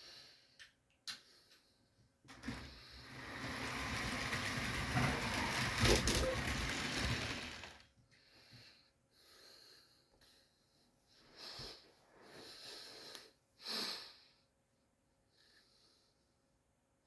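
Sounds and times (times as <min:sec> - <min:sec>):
model train rattling on track: 0:02.3 - 0:07.9.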